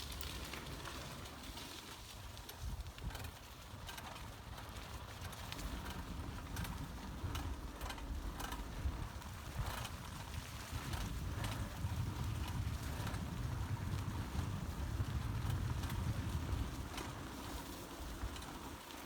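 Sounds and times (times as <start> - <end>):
bicycle clicks and rattles: 0.0 - 19.0
bicycle tyres rumbling: 0.0 - 19.0
wind: 0.0 - 19.0.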